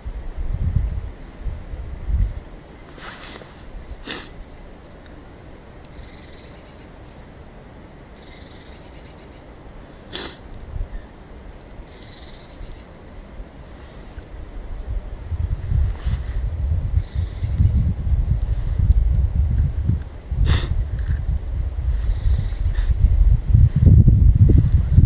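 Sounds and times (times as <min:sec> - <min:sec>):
songbird trilling: 0:05.9 - 0:07.0, 0:08.2 - 0:09.5, 0:11.7 - 0:13.0, 0:22.0 - 0:23.2.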